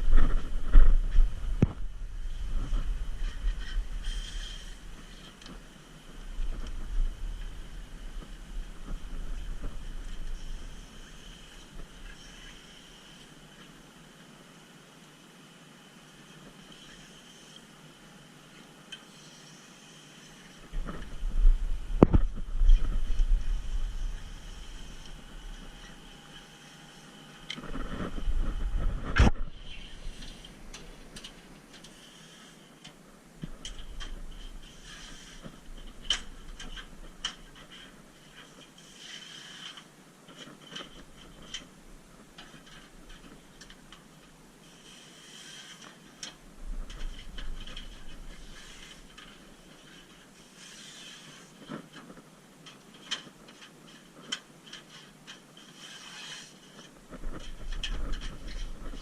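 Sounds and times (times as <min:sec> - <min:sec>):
low rumble: 0:00.0 - 0:05.1, 0:20.7 - 0:26.2, 0:27.7 - 0:31.1
rubbing and scraping on car: 0:00.1 - 0:05.6, 0:33.8 - 0:41.7, 0:44.6 - 0:52.2, 0:53.0 - 0:59.0.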